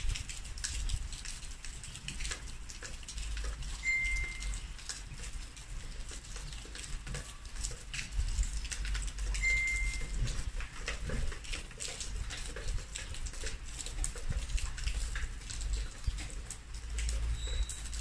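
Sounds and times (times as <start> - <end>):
wind rumble on microphone: 0.0 - 2.3
rain pattering and dripping: 0.0 - 18.0
short high beep: 3.8 - 4.6, 9.4 - 10.1.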